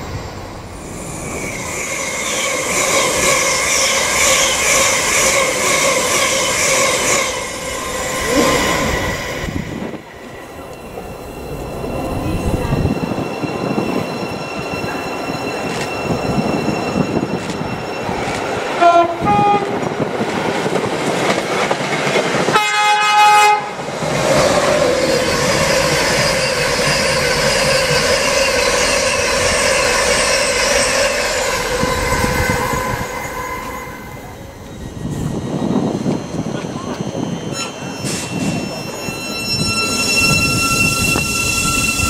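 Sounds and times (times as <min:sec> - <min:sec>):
train horn blasts: 0:18.8 - 0:19.8, 0:22.5 - 0:23.8.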